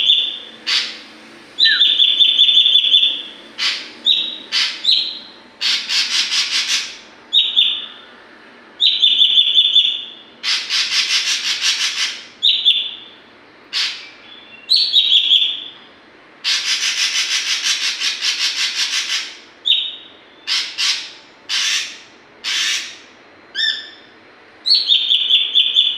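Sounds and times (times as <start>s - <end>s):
bird harsh rattling trills: 0.0s - 7.9s, 8.8s - 13.0s, 16.4s - 24.1s
bird whistled notes: 1.6s - 8.0s, 8.8s - 13.1s, 13.9s - 15.8s, 24.7s - 25.9s.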